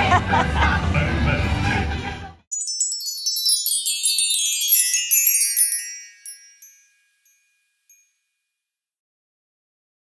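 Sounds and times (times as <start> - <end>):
high tinkling chimes: 2.5 - 8.4.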